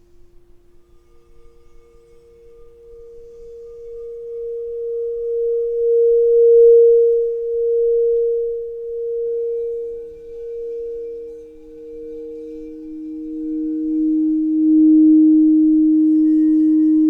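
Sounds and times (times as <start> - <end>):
singing bowl ringing: 0.0 - 17.0.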